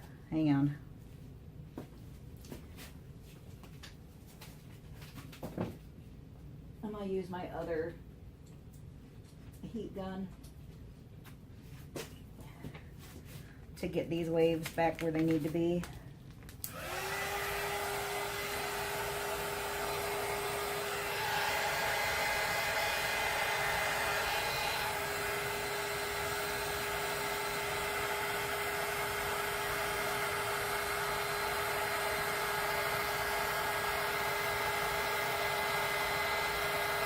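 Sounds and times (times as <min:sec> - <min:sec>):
heat gun blower hiss: 0:16.7 - 0:37.0.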